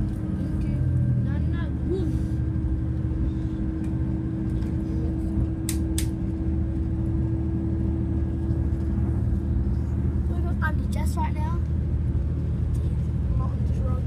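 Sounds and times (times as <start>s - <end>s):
train rumble inside carriage: 0.0s - 14.0s.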